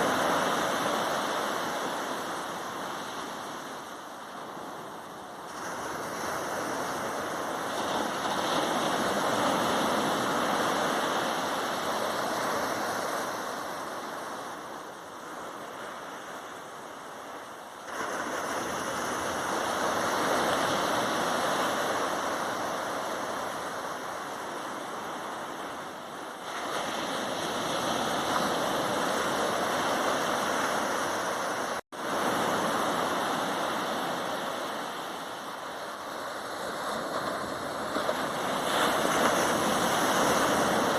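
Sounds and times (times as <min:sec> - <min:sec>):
waves breaking on shore: 0:00.0 - 0:40.9.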